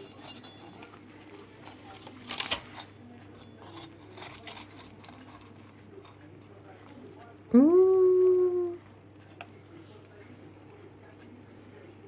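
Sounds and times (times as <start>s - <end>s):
pie crust crackling: 0.0s - 7.5s.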